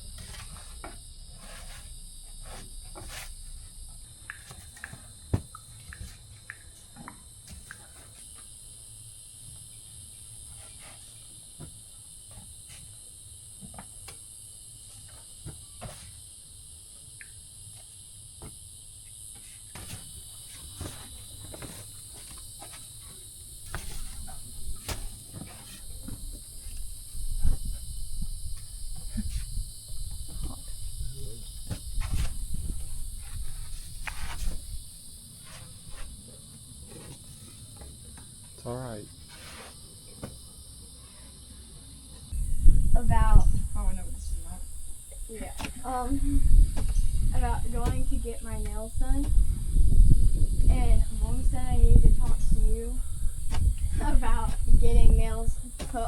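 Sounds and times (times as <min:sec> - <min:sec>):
crickets chirping: 0:00.0 - 0:56.0
low rumbling noise: 0:42.3 - 0:55.7.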